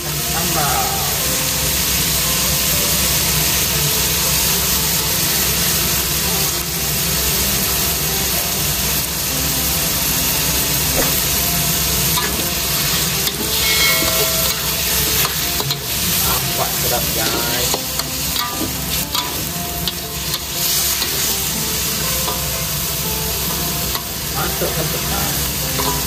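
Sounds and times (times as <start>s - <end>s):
food sizzling in a wok: 0.0s - 26.0s
metal ladle scraping pan: 12.2s - 22.5s.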